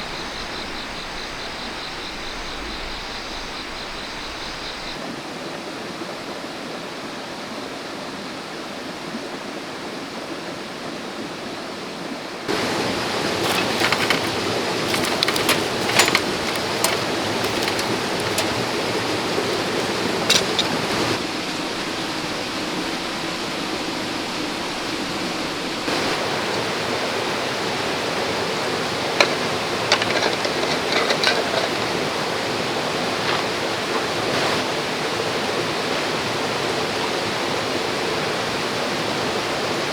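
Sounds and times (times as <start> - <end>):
river running over stones: 12.5 - 39.8.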